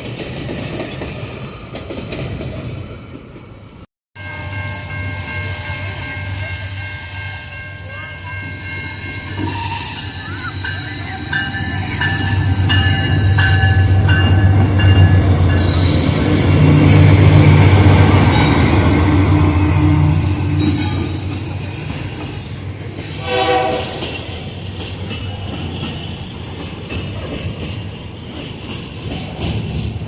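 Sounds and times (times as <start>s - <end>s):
high ringing tones: 4.2s - 15.9s
locomotive engine rumble: 5.0s - 30.0s.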